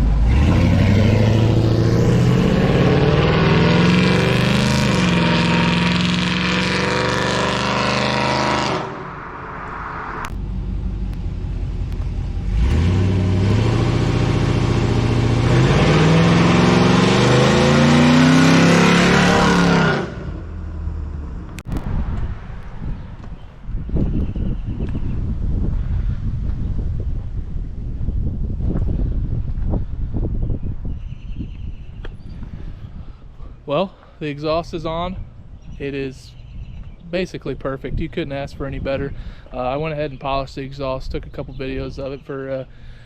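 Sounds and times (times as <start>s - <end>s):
engine revving: 0.0s - 21.7s.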